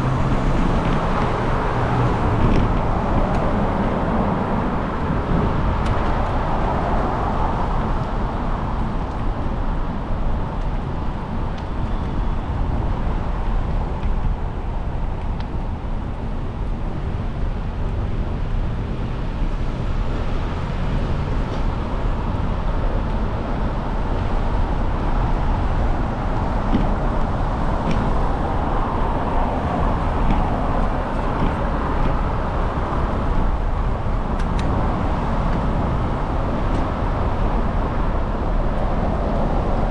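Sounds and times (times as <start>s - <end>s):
cars passing: 0.0s - 9.5s, 18.8s - 39.9s
wind and road noise: 0.0s - 39.9s.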